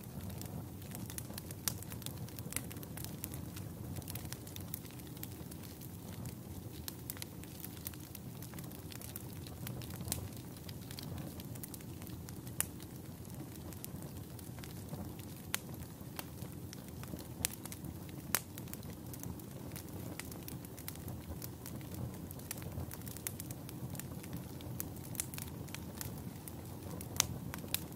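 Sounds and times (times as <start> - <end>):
burning wood crackling and popping: 0.0 - 27.9
campfire flames rushing: 0.0 - 27.9.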